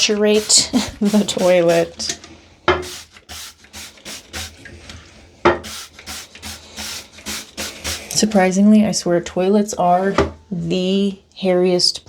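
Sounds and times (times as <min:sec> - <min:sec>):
toilet brush swishing: 0:00.0 - 0:02.2, 0:02.8 - 0:08.4.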